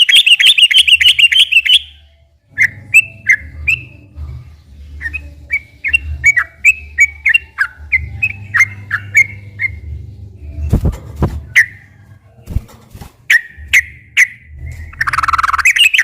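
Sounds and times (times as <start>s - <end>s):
bird whistling song: 0.0s - 4.1s, 5.0s - 9.9s, 11.5s - 11.9s, 13.3s - 16.0s.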